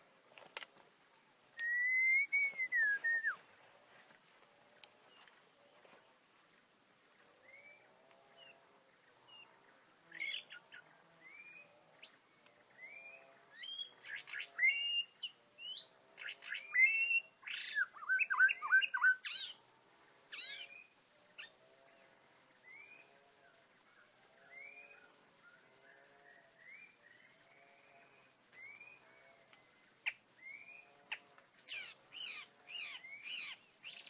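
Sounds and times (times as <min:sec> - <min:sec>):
bird rising whistles: 0:01.6 - 0:03.4.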